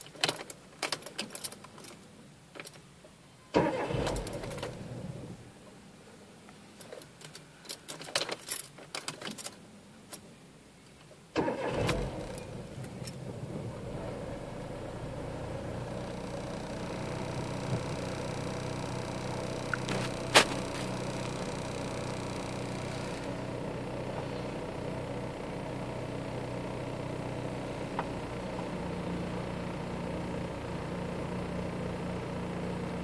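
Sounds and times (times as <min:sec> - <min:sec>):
car engine cranking and idling: 0:03.6 - 0:05.4, 0:11.4 - 0:33.0
keys jangling in ignition: 0:06.9 - 0:09.6.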